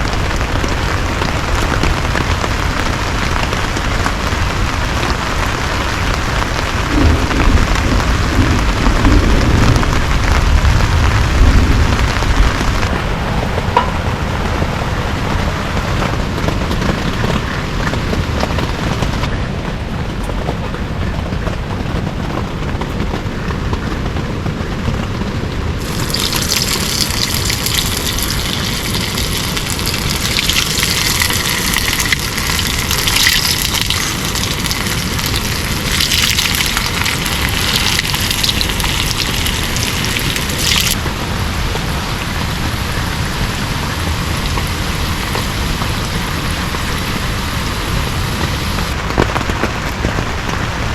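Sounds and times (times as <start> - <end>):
heavy rain falling: 0.0 - 50.9
low rumble: 6.6 - 16.3.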